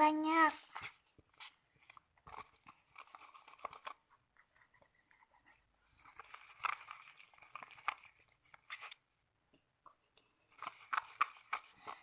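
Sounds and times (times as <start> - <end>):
slime being stirred wet squishing: 10.5 - 12.0.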